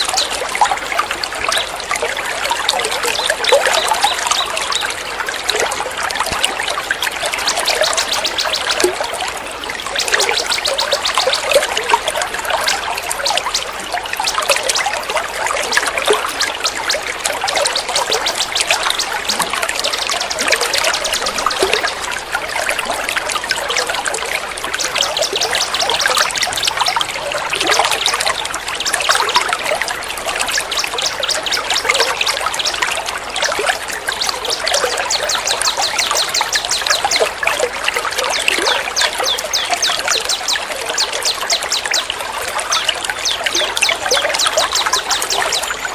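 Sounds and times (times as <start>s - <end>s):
water trickling: 0.0s - 45.9s
small birds trilling: 6.2s - 22.0s.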